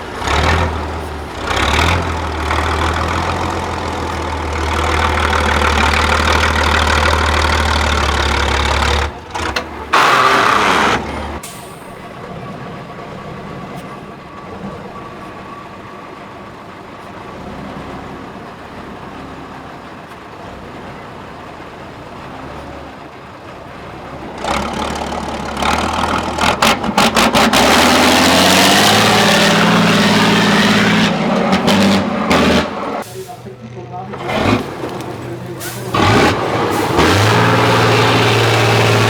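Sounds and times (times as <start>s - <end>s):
truck engine revving: 0.0s - 39.0s.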